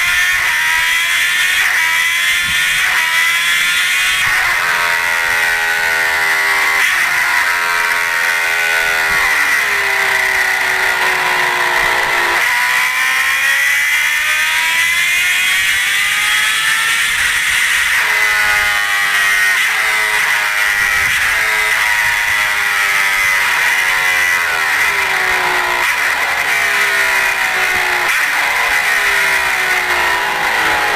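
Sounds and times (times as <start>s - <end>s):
motorcycle engine: 0.0s - 30.9s.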